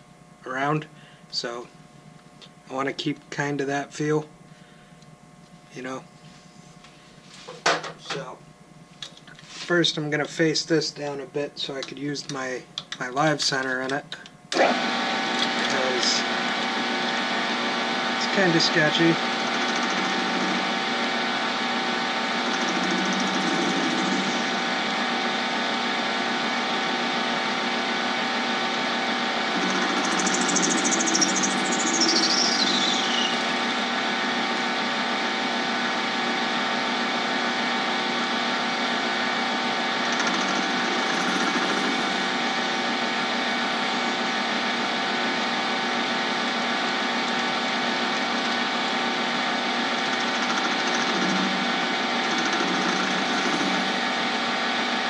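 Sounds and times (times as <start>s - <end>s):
lathe motor whine: 3.6s - 55.0s
cutting tool squealing: 18.2s - 20.9s, 22.2s - 25.0s, 29.5s - 33.8s, 40.0s - 44.2s, 49.8s - 54.0s.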